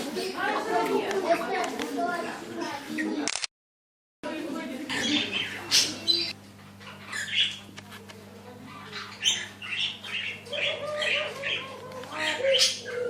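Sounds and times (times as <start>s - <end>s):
low electrical hum: 4.3s - 13.0s
birds squawking: 4.9s - 7.8s, 8.6s - 13.0s.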